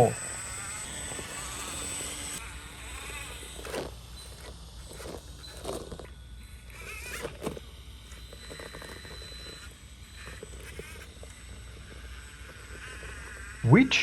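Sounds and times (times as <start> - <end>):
tyres scraping on rock: 0.0 - 13.6
electric motor whining: 0.0 - 14.0
grit pattering on stone: 1.2 - 13.6.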